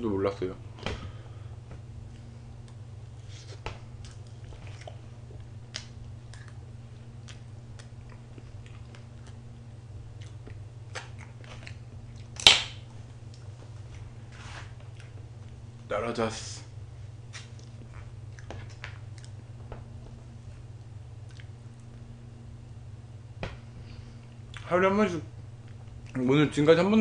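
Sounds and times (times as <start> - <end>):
steady low hum: 0.0 - 27.0
person chewing cake: 2.1 - 12.4, 14.7 - 15.6, 17.3 - 19.5, 20.6 - 22.1, 23.8 - 24.7, 25.6 - 26.2
wet mouth clicks: 21.2 - 21.6.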